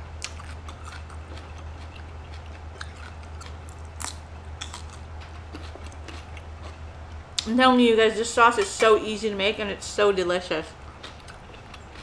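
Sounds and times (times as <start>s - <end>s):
low hum: 0.0s - 12.0s
person chewing food: 0.1s - 7.4s, 10.8s - 12.0s.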